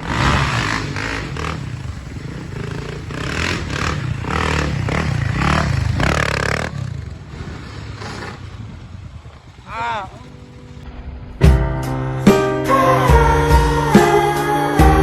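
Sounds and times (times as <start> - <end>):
vehicle engine revving: 0.0 - 10.9.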